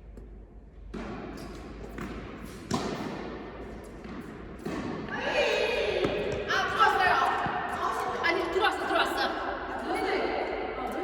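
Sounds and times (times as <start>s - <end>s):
tennis ball struck and bouncing: 0.9s - 5.1s.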